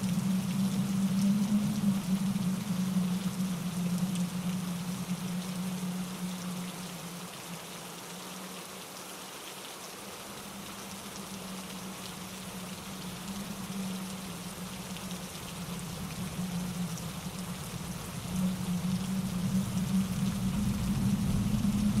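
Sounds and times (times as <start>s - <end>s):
rain pattering: 0.0s - 22.0s
stream tumbling over rocks: 0.0s - 22.0s
low rumble: 11.0s - 22.0s.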